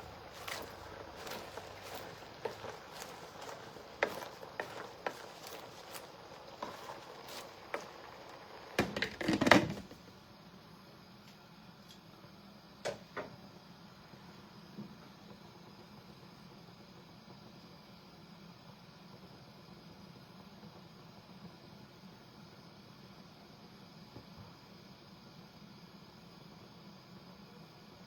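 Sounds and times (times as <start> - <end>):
kitchen utensils clicking and knocking: 0.0 - 9.8.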